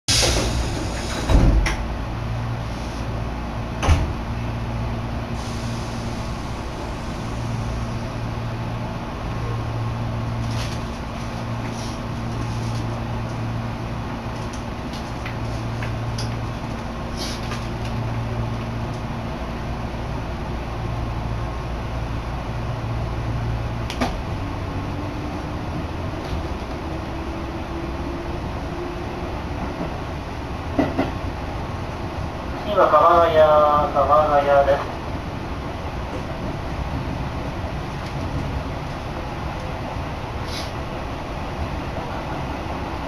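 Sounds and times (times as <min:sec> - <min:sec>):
electric train low hum: 0:00.1 - 0:43.0
thump: 0:01.2 - 0:01.8, 0:03.8 - 0:04.1.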